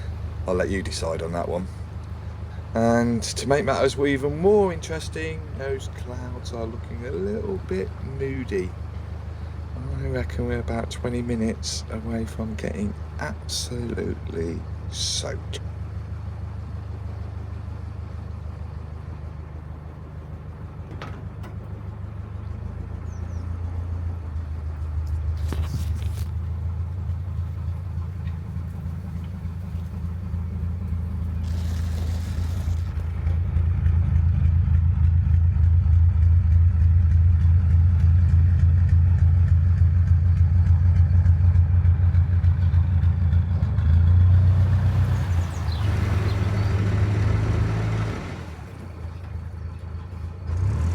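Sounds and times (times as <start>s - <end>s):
boat engine pulsing thrum: 0.0s - 50.5s.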